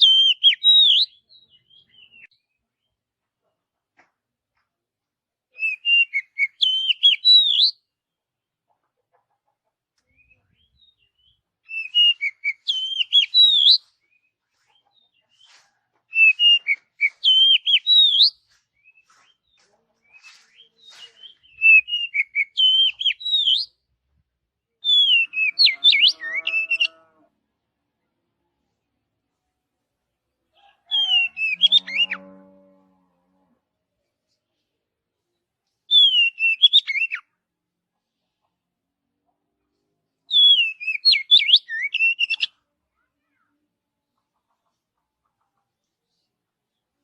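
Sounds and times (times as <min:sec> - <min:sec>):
bird singing whistled phrases: 0:00.0 - 0:02.3, 0:05.6 - 0:07.8, 0:11.7 - 0:13.8, 0:20.8 - 0:23.7, 0:24.9 - 0:27.0, 0:35.9 - 0:37.2, 0:40.3 - 0:42.5.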